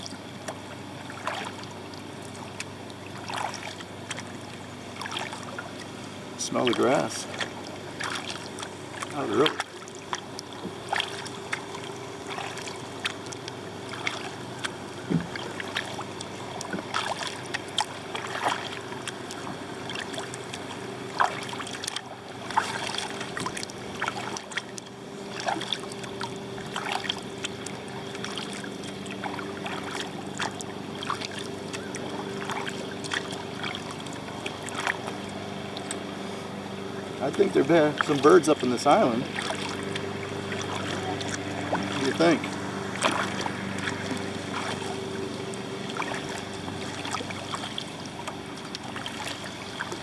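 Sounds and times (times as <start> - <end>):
water splashes and drips: 0.0 - 36.1, 37.2 - 50.0
distant engine hum: 0.0 - 50.0
kayak paddle strokes in water: 0.0 - 50.0.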